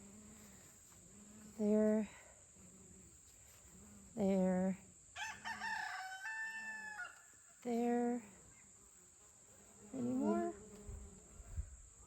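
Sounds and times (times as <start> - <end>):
high insect trill: 0.0 - 12.0
rooster crowing: 5.2 - 7.3.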